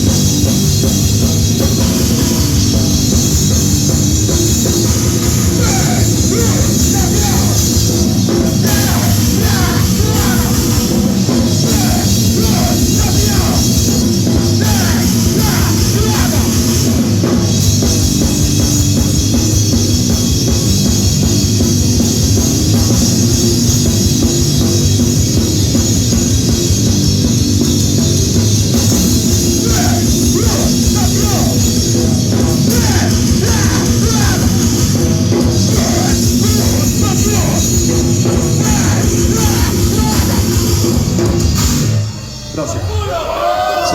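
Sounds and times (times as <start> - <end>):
fast drumming: 0.0 - 42.0
heavy distorted guitar: 0.0 - 43.9
shouted vocals: 5.4 - 14.0, 14.6 - 17.0, 29.5 - 31.8, 32.6 - 35.0, 35.6 - 40.7, 42.5 - 43.9.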